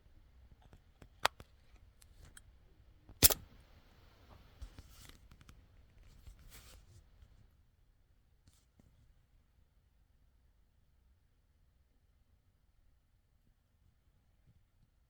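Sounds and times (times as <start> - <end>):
sharp clicks: 3.2 - 3.4.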